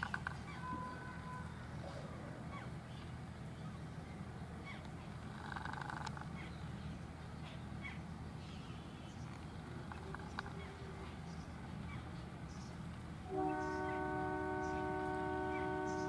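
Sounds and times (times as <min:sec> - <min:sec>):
bird chirps: 0:13.4 - 0:16.0.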